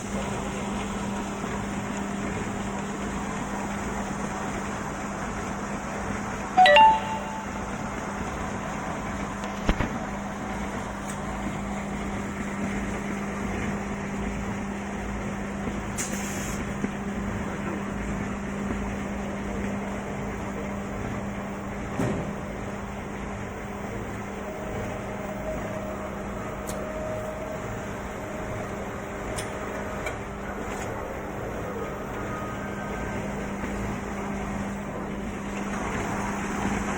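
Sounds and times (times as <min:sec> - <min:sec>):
short hiss: 0:16.0 - 0:16.6.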